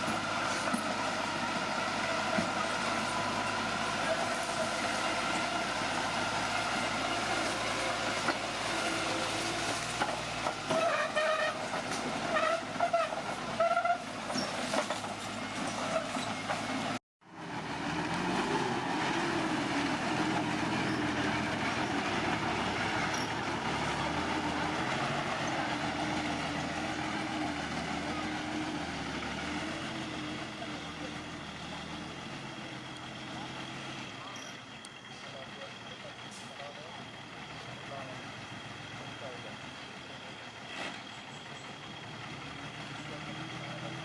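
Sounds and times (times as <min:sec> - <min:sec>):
bulldozer diesel engine: 0:00.0 - 0:44.0
track clatter: 0:00.0 - 0:44.0.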